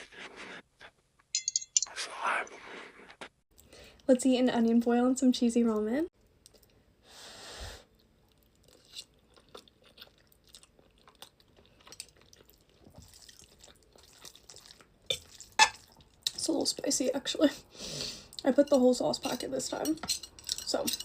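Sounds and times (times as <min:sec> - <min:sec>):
person chewing food: 0:07.9 - 0:16.3.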